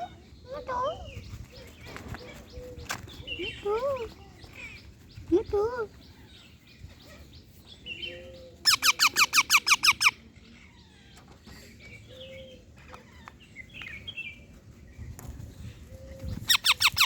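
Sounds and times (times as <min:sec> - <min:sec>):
parrot soft chirps: 0:08.6 - 0:10.2, 0:16.4 - 0:17.0
parrot squawking: 0:08.7 - 0:10.2.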